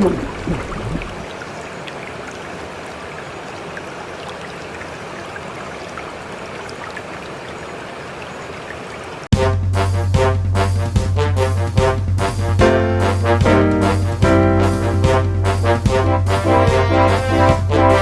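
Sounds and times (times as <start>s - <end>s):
faint drips: 0.0s - 9.3s
floodwater rushing: 0.0s - 9.3s.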